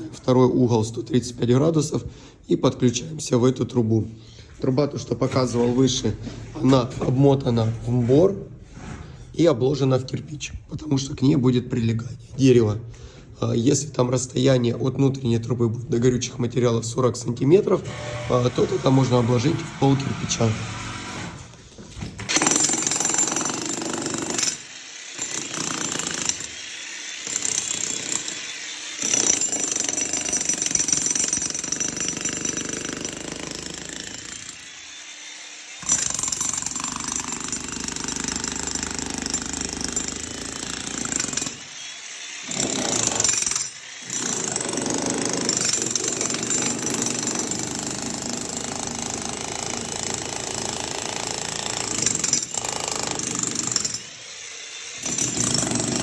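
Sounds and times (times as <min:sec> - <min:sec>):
demolition hammer chiselling concrete: 0:17.8 - 0:21.5, 0:22.2 - 0:56.0.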